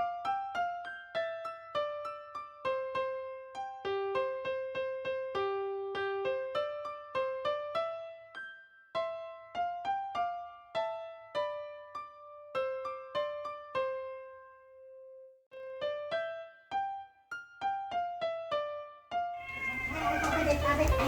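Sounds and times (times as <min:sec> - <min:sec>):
light piano melody: 0:00.0 - 0:21.0.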